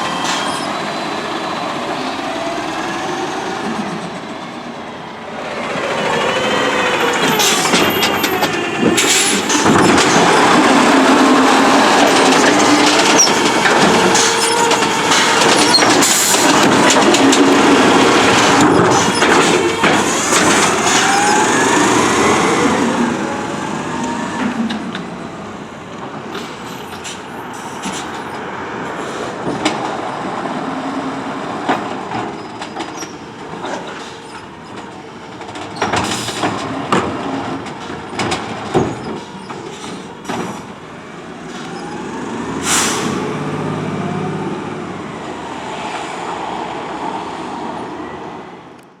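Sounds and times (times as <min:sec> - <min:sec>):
garbage truck engine and hydraulics: 0:00.0 - 0:49.0
air brake hisses: 0:42.6 - 0:43.3.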